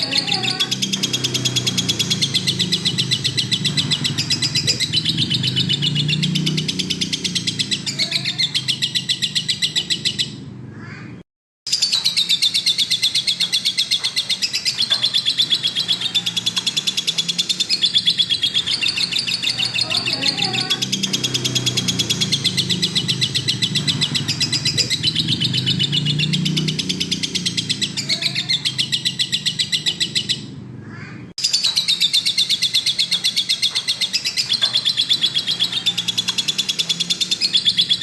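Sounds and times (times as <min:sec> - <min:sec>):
lovebird chattering trill: 0:00.0 - 0:10.4, 0:11.7 - 0:38.0.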